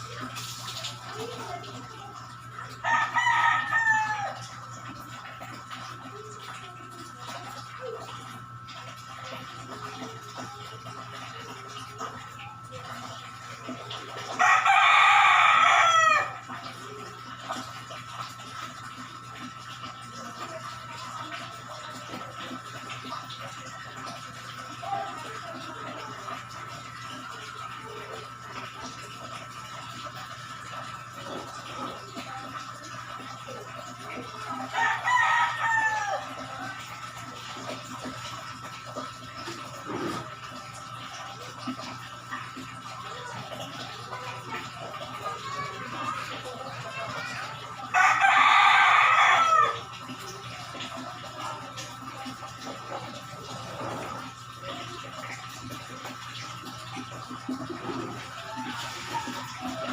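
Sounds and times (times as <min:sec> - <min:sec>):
thin steady hum: 0:00.0 - 0:59.9
rooster crowing: 0:02.8 - 0:04.5, 0:14.4 - 0:16.5, 0:34.8 - 0:36.5, 0:47.9 - 0:49.8.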